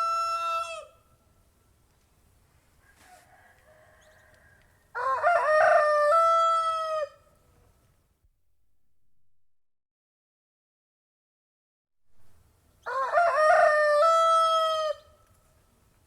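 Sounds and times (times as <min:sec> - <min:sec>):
rooster crowing: 0:00.0 - 0:01.0, 0:02.8 - 0:07.3, 0:12.8 - 0:15.2.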